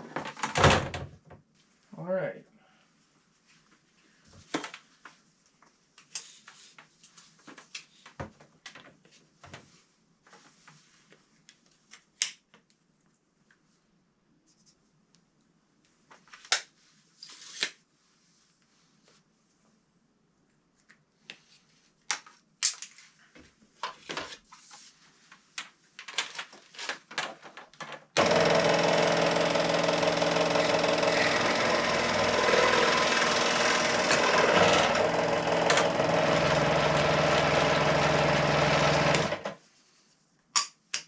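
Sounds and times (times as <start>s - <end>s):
power tool cutting pipe: 28.2s - 39.5s.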